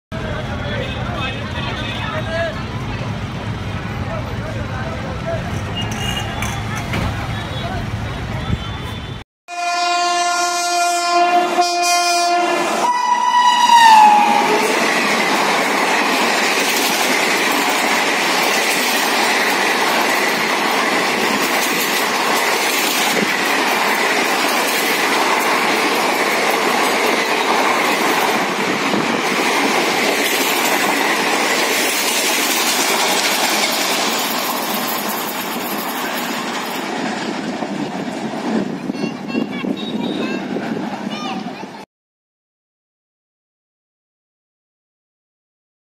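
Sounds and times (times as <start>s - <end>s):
train horn: 8.5s - 14.8s
train wheels clattering past: 13.9s - 39.8s.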